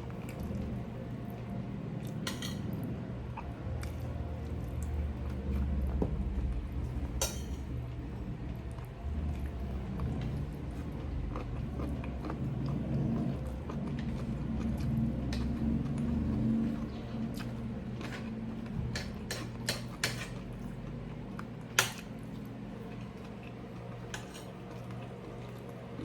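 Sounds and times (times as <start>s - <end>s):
chewing: 0.0s - 26.0s
cutlery clinking against plate: 2.2s - 2.8s, 7.2s - 7.7s, 18.9s - 20.5s, 21.8s - 22.1s, 24.1s - 24.6s.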